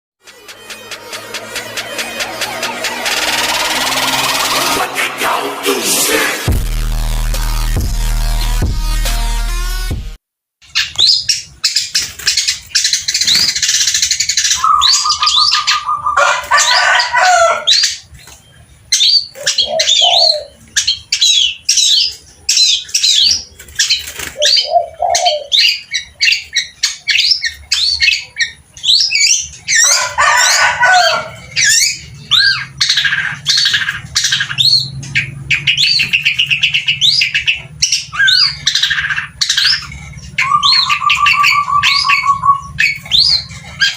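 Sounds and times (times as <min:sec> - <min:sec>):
shrike singing: 0:00.2 - 0:09.4, 0:29.0 - 0:43.9.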